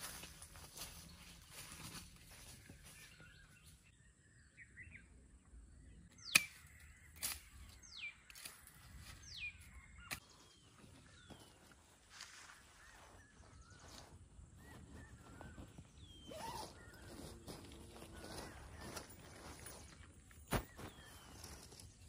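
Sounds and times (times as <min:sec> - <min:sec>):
faint outdoor ambience: 0:00.0 - 0:22.0
bird whistling: 0:14.6 - 0:17.3.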